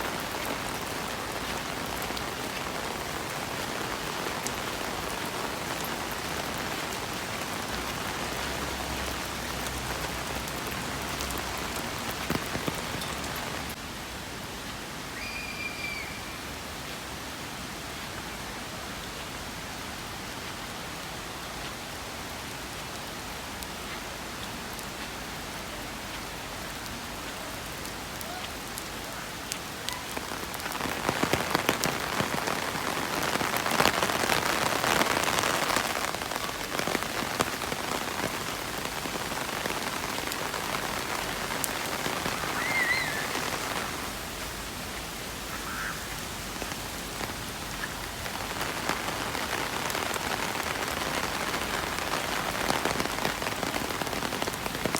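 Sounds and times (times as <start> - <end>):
raindrops ticking: 0.0 - 13.8
rain falling: 0.0 - 54.9.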